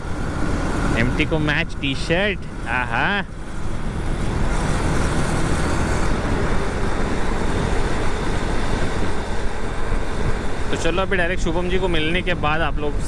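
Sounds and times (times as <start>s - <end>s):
motorcycle engine: 0.0s - 12.6s
road noise: 0.0s - 13.0s
wind rushing over microphone: 3.3s - 13.0s.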